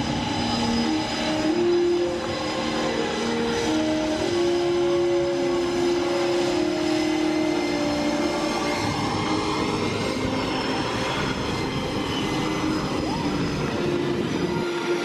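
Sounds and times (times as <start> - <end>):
aircraft engines droning whine: 0.0 - 15.0
rushing noise: 0.0 - 15.0.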